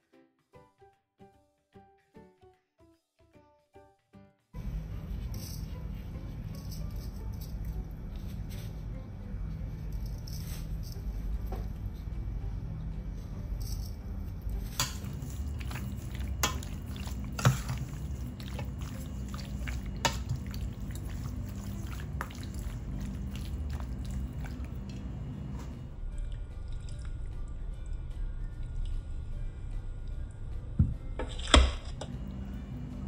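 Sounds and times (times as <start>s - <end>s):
wet squishing of meat: 15.0s - 25.2s.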